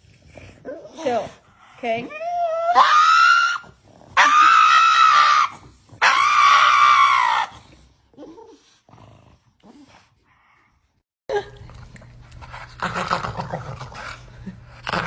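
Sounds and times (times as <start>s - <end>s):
dog whimpering: 1.9s - 4.5s
dog wailing: 2.0s - 7.6s.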